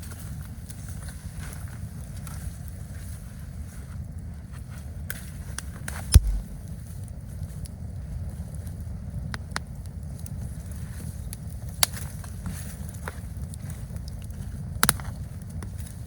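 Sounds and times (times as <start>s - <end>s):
campfire crackling and popping: 6.2s - 6.7s
low rumble: 6.2s - 6.7s.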